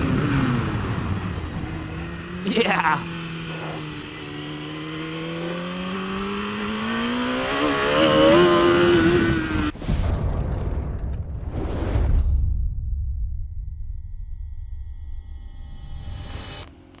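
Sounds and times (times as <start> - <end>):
low rumbling rush of noise: 0.0 - 2.4, 9.6 - 17.0
motorcycle engine accelerating: 0.0 - 9.8.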